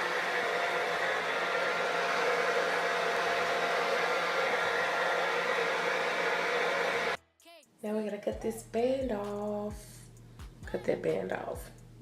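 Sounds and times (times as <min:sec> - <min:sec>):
blow dryer running: 0:00.0 - 0:07.2.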